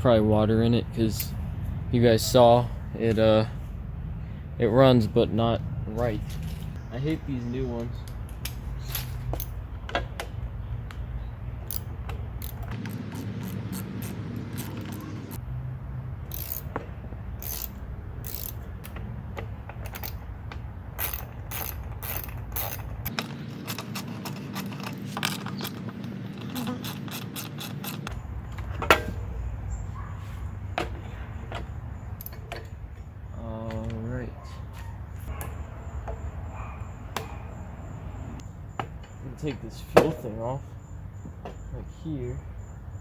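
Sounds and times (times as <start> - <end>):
metallic tool clicks: 11.7 - 15.4, 21.0 - 28.2.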